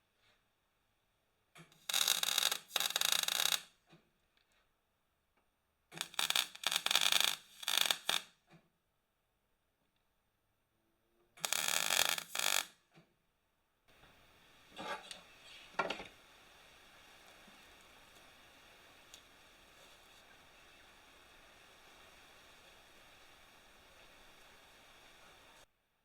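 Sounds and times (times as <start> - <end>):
faint steady hum: 13.6 - 25.7
harsh hissing and scraping on steel: 13.9 - 25.7
soft scrapes: 14.7 - 16.0.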